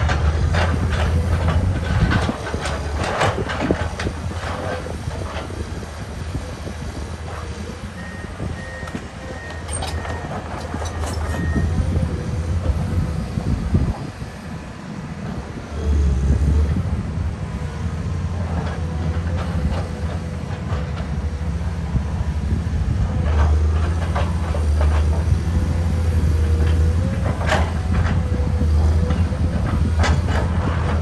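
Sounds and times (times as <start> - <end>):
excavator diesel engine: 0.0 - 31.0
metal clanks: 8.8 - 11.7.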